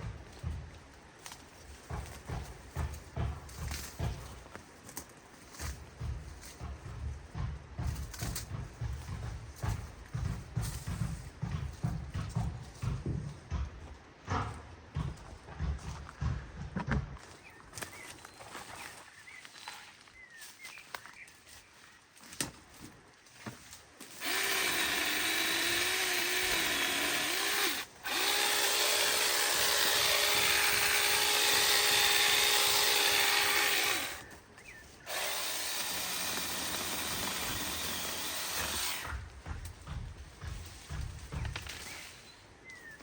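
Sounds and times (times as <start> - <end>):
quiet rustling and knocks: 0.0 - 24.6, 39.0 - 43.0
power tool motor running: 24.1 - 34.3, 35.0 - 39.2.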